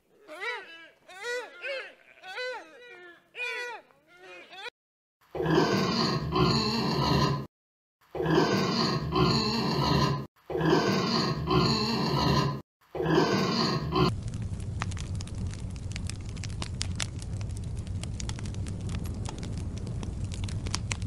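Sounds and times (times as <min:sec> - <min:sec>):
wild boars grunting: 0:08.2 - 0:14.1
crackling noise: 0:13.4 - 0:21.0.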